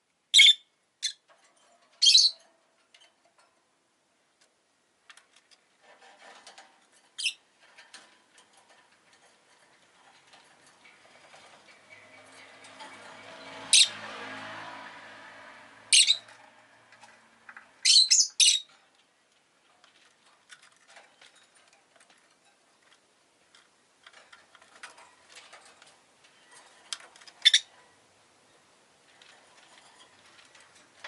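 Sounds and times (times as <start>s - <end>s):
lovebird chirping: 0.3s - 1.2s, 2.0s - 2.4s, 7.2s - 7.4s, 15.9s - 16.3s, 17.8s - 18.7s, 27.4s - 27.7s
passing vehicle engine: 11.0s - 17.9s.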